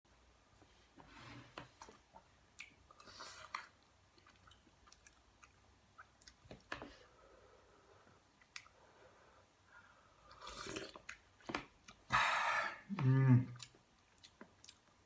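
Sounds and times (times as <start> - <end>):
chewing: 2.6 - 6.8, 13.5 - 15.0.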